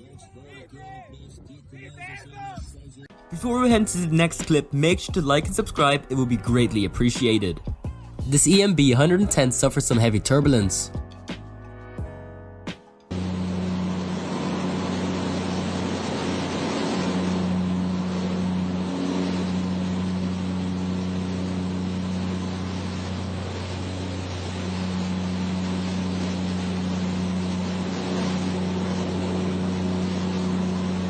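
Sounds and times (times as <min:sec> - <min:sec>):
propeller hum: 0:13.1 - 0:31.0
rushing airflow: 0:13.1 - 0:31.0.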